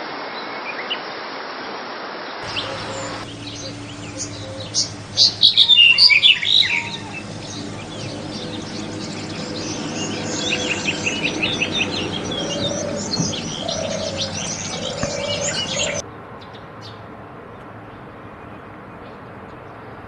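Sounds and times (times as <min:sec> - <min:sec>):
low held bird notes: 0:02.4 - 0:16.0
songbirds chirping: 0:02.4 - 0:20.0.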